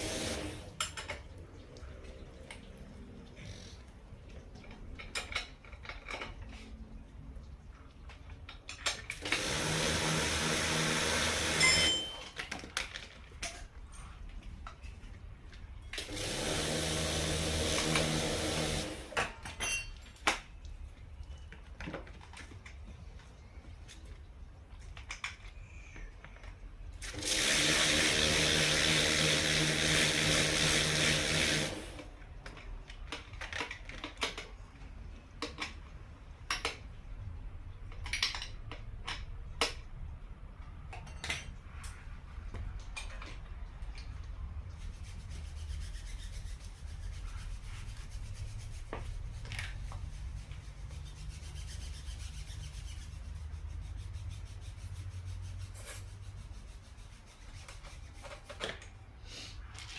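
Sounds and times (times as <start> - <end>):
metal tools clicking and knocking: 4.6 - 6.6, 19.2 - 20.5, 37.8 - 39.8, 40.8 - 42.0
small motor tool running: 9.3 - 11.9, 16.0 - 19.1, 27.2 - 32.0.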